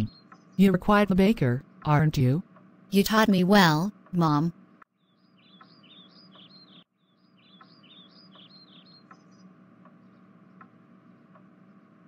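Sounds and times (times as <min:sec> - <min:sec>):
faint bird chirps: 0:00.0 - 0:00.8, 0:05.0 - 0:12.0
steady low hum: 0:00.0 - 0:12.0
faint ticks: 0:08.4 - 0:11.8.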